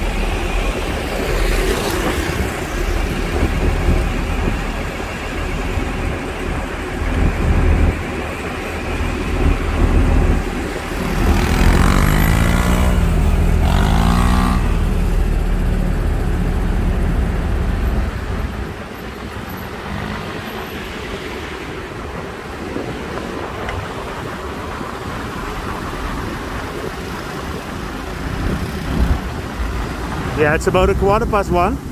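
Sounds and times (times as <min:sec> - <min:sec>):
road traffic passing: 0:00.0 - 0:31.9
vehicle engine changing pitch: 0:09.1 - 0:18.7.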